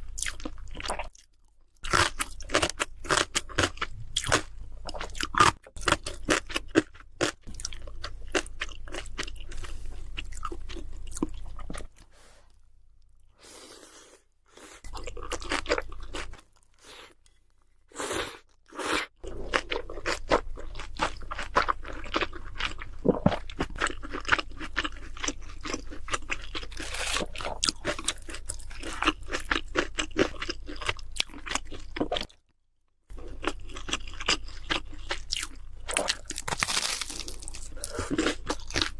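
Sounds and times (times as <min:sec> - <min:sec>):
crunching fried food: 0:00.2 - 0:09.6, 0:19.3 - 0:32.4, 0:33.2 - 0:38.9.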